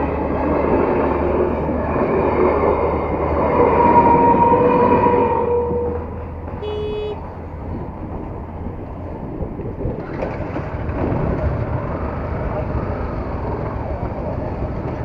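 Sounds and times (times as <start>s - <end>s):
long horn: 3.8s - 7.3s
motorcycle riding in traffic: 5.7s - 15.0s
short vehicle horn beep: 6.6s - 7.2s.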